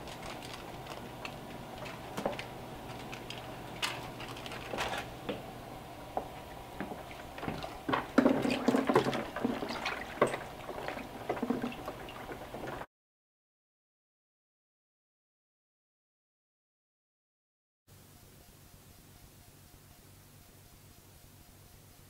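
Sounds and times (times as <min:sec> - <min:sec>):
handling clicks and rustles: 0:00.0 - 0:05.1
steady low hum: 0:00.0 - 0:12.8, 0:17.9 - 0:22.0
water sloshing and splashing: 0:06.4 - 0:12.9.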